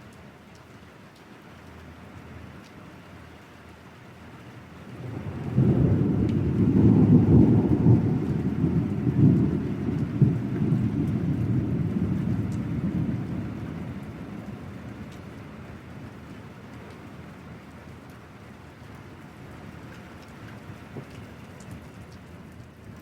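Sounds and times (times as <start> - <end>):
raindrops ticking: 0.0 - 2.9, 4.8 - 23.0
steady rain: 0.0 - 23.0
thunder rumbling: 4.9 - 16.3.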